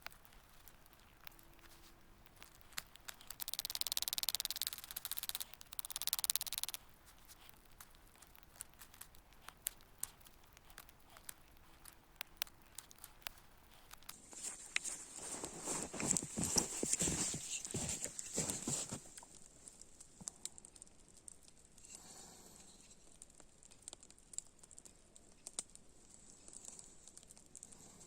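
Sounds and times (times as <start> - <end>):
crinkling rustle: 0.0 - 22.0
sharp crackles: 0.0 - 22.0, 22.8 - 28.0.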